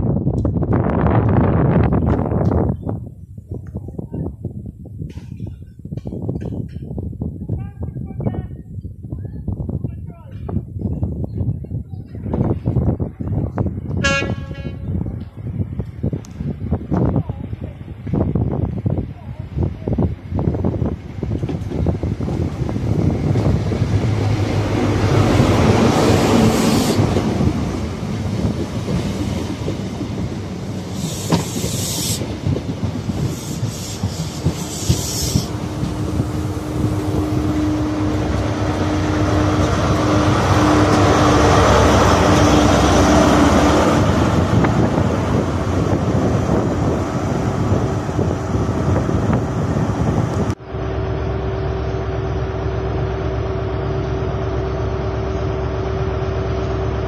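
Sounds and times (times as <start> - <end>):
diesel train passing: 12.3 - 57.0.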